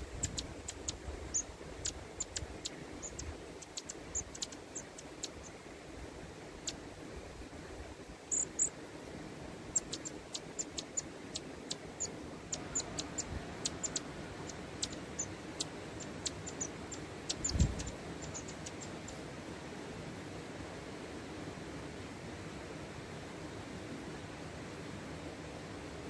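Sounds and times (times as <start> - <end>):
high thin bird calls: 0.0 - 5.6, 9.8 - 19.2
steady hiss: 0.0 - 26.0.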